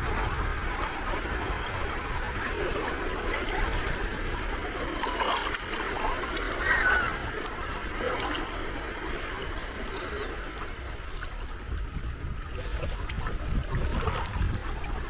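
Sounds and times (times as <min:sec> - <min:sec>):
sea waves lapping at shore: 0:00.0 - 0:15.0.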